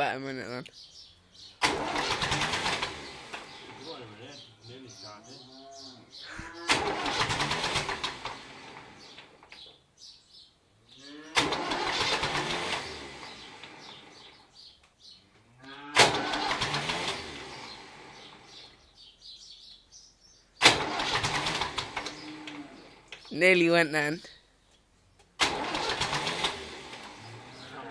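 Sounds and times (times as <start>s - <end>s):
diesel engine cranking: 1.3s - 5.4s, 6.4s - 9.7s, 11.3s - 15.2s, 15.8s - 19.1s, 20.6s - 23.3s, 25.4s - 27.9s
starter motor whining: 1.4s - 4.5s, 6.4s - 9.7s, 11.3s - 14.7s, 15.8s - 18.8s, 20.6s - 23.2s, 25.4s - 27.9s.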